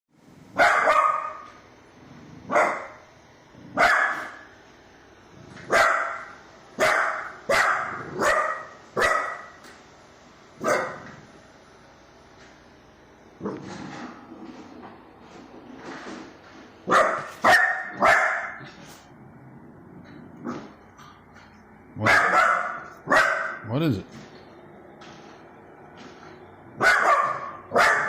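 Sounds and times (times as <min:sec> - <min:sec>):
dog barking: 0:00.6 - 0:01.5, 0:02.5 - 0:03.0, 0:03.8 - 0:04.4, 0:05.7 - 0:09.6, 0:10.6 - 0:11.1, 0:16.9 - 0:18.6, 0:22.0 - 0:23.6, 0:26.8 - 0:28.0.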